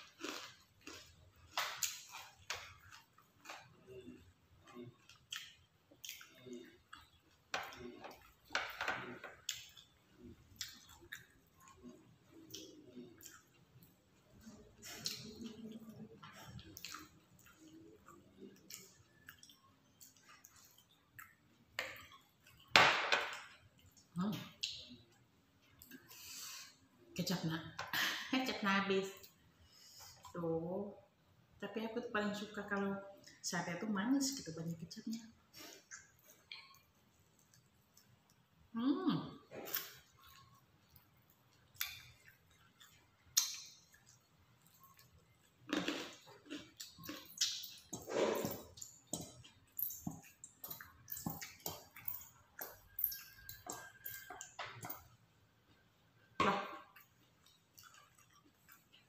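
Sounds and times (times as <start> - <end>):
close chewing: 0.0 - 22.7, 39.5 - 55.8, 57.0 - 59.0
wet mouth clicks: 35.6 - 38.1, 41.8 - 44.2, 46.5 - 55.0.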